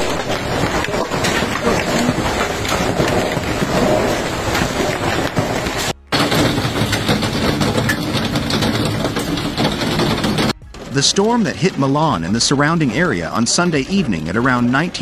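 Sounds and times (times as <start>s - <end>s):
rain and wind rushing: 0.0s - 10.5s
hailstones hitting hard surfaces: 0.0s - 10.9s.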